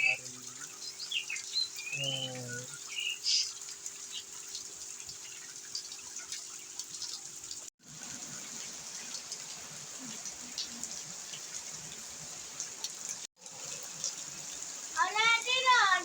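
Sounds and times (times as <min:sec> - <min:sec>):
heavy rain pouring: 0:07.8 - 0:16.0.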